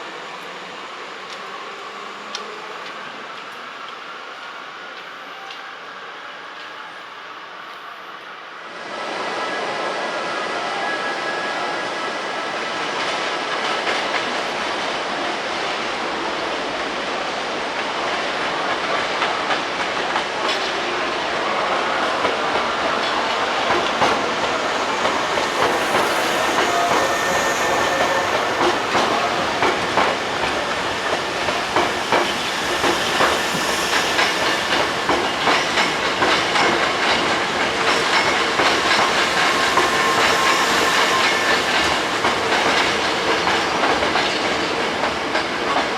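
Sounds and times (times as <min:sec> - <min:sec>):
electric train running on rails: 0:00.0 - 0:45.9.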